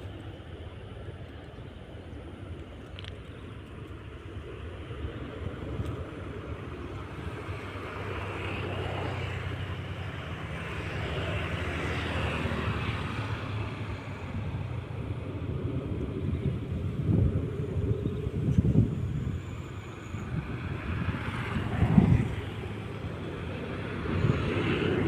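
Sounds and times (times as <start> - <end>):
jet engines roaring: 0.0 - 25.0.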